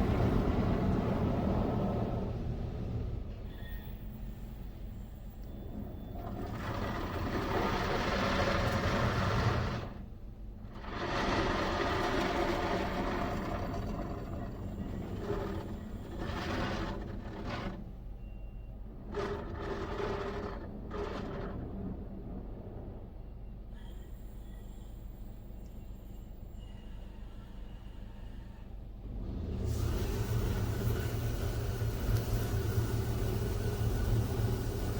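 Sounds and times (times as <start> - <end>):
car wash machinery running: 0.0 - 23.0, 29.0 - 34.9
rushing spray or air: 29.6 - 34.9.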